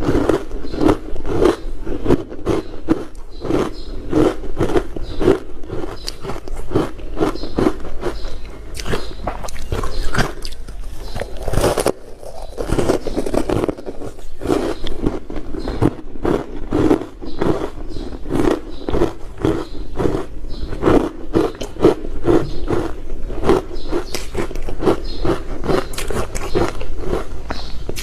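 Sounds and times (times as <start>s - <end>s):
ice crunching being chewed: 0.0s - 28.0s.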